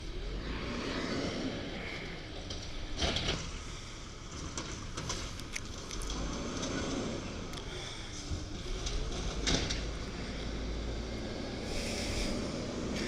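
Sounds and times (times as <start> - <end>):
diesel garbage truck running: 0.0 - 13.0
loud clatter: 8.2 - 10.4.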